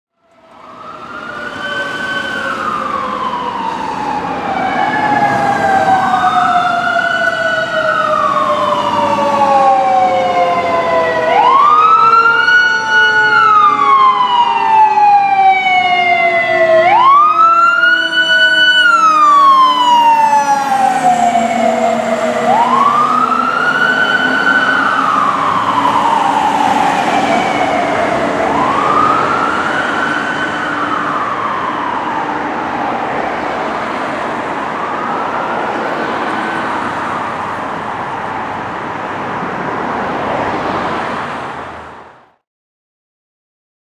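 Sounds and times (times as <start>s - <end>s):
fire engine siren wailing: 0.2s - 42.4s
lower siren tone sliding downward: 0.4s - 33.5s.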